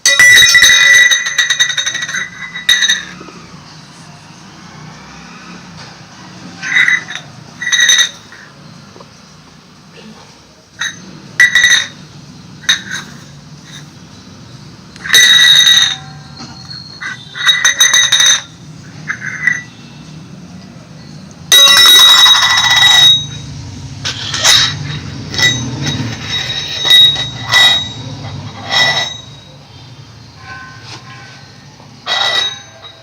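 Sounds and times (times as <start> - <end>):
buzzy electronic toy ringing: 24.4 - 33.0.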